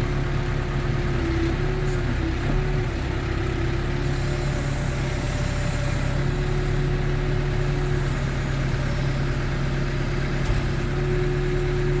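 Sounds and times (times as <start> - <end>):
diesel engine idling: 0.0 - 11.9.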